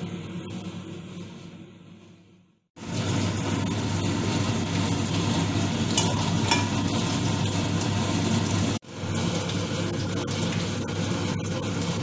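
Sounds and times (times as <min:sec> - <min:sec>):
omelet sizzling in a pan: 0:02.8 - 0:12.0.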